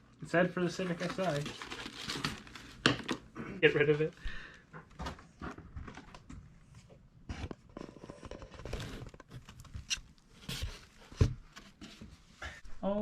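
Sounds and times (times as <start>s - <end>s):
packaging rustling: 0.7s - 3.3s.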